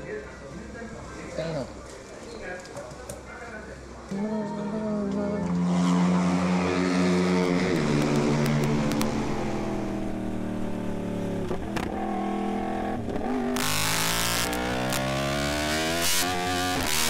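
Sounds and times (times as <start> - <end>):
motorcycle engine running: 5.6 - 17.0.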